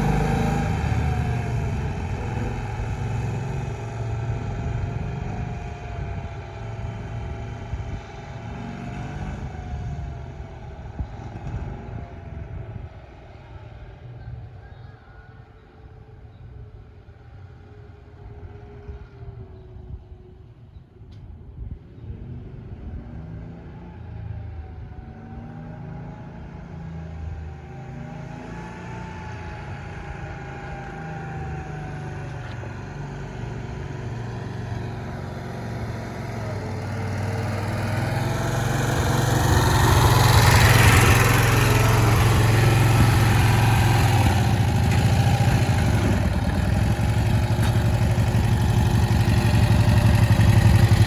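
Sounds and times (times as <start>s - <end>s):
small engine running: 0.0s - 4.3s, 34.1s - 51.0s.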